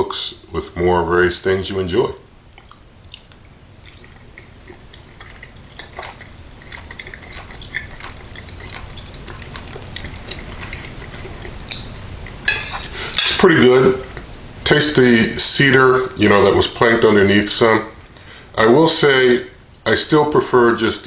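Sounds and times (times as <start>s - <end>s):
person chewing: 2.5s - 13.2s
metal fork clinking on plate: 12.5s - 13.4s.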